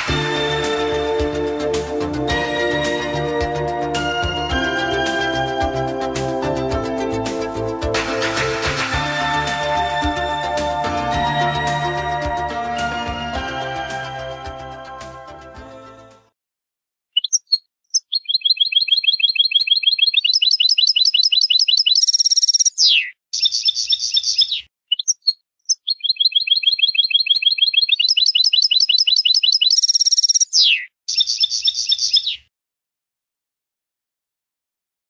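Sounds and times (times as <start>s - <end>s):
songbird trilling: 17.2s - 32.5s.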